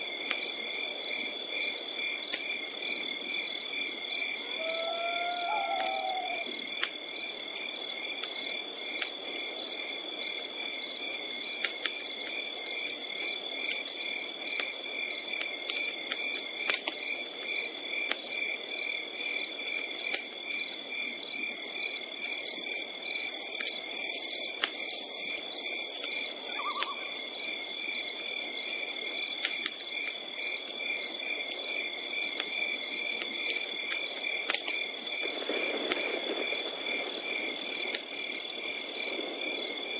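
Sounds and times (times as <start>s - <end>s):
night insects trilling: 0.0s - 39.9s
campfire crackling and popping: 0.1s - 39.9s
gliding bird call: 4.6s - 6.4s, 26.5s - 27.2s.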